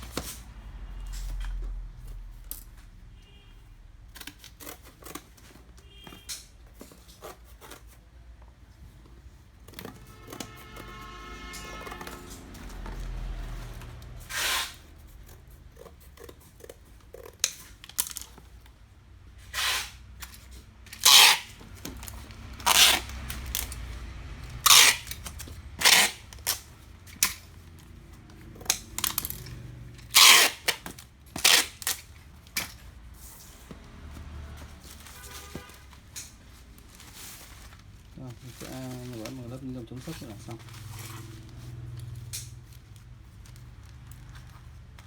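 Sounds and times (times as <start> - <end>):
packing material rasps: 19.4 - 27.4, 30.0 - 32.5.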